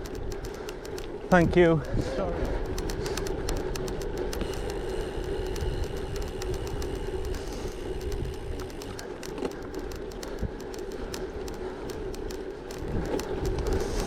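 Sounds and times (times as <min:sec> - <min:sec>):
wind rumble on microphone: 0:00.0 - 0:09.0, 0:12.2 - 0:14.0
bike tyres rolling on gravel: 0:00.0 - 0:14.0
stones clicking under tyres: 0:00.0 - 0:14.0.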